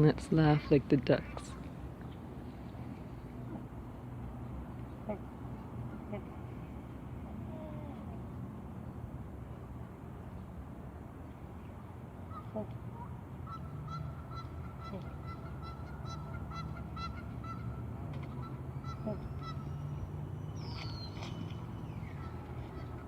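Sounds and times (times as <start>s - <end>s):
geese honking: 13.4s - 19.9s.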